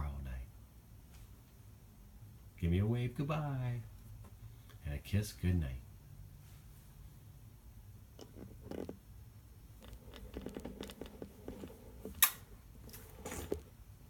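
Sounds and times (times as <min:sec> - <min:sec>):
soft rustling: 0:09.6 - 0:13.9.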